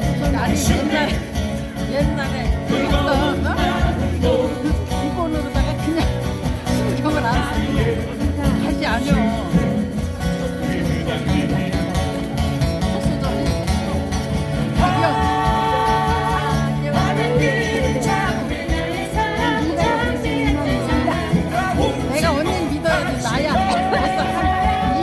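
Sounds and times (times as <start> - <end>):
guitar ensemble playing: 0.0 - 25.0
person singing: 14.7 - 25.0.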